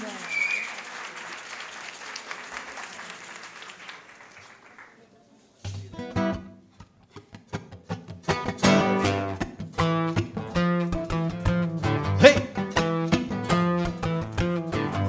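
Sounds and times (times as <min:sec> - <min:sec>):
audience applause: 0:00.0 - 0:05.1
strummed acoustic guitar chords: 0:07.2 - 0:15.0.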